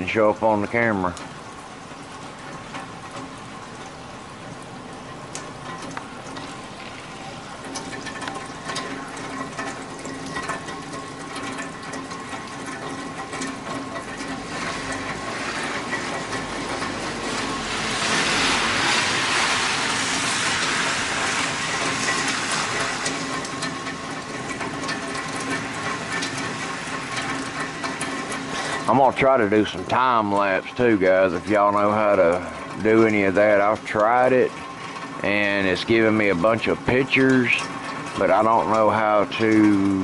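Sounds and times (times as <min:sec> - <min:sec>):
rain dripping: 0:00.0 - 0:40.0.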